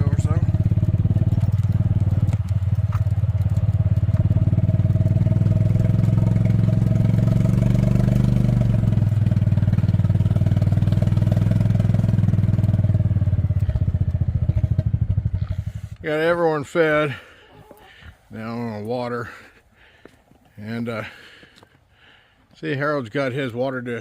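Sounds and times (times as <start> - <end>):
small engine pulsing hum: 0.0 - 16.0.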